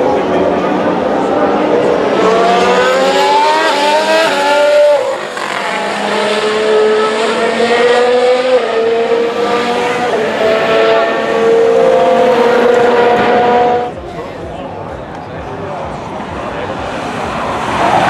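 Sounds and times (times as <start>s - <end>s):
racing car engine at high revs: 0.0s - 14.0s.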